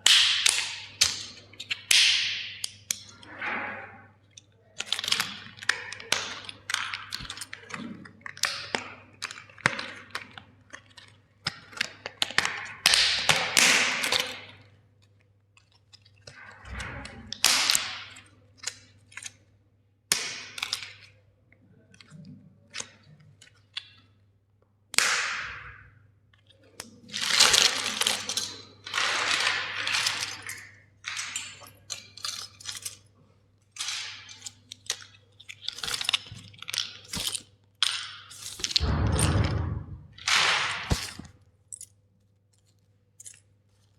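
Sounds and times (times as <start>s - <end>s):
plastic crackling and snapping: 4.3s - 19.4s, 24.9s - 43.9s.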